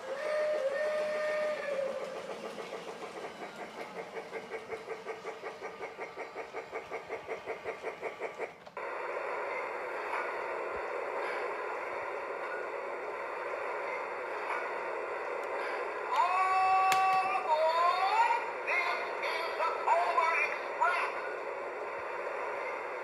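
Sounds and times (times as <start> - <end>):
toy train whistle: 0.0 - 2.5
toy train chugging: 0.0 - 23.0.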